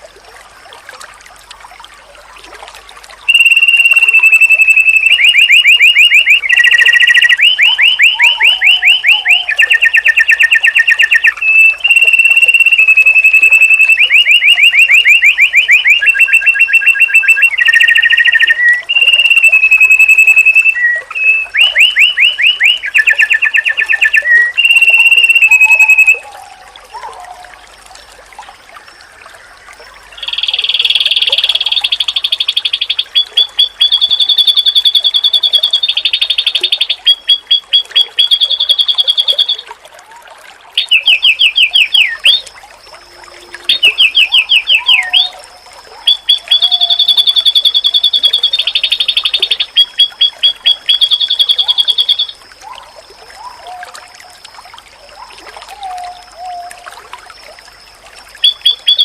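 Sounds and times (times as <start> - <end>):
white-eye bird song: 3.2 - 39.7, 40.8 - 54.5, 55.1 - 56.9, 58.3 - 59.0.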